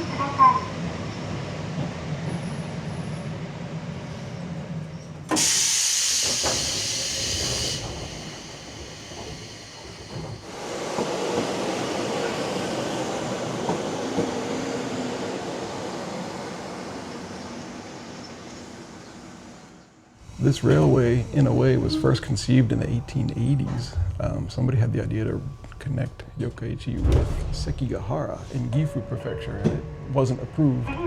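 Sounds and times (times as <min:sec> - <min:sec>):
loud air hiss: 0:05.3 - 0:12.7
electric train running: 0:05.3 - 0:15.9, 0:20.2 - 0:26.9.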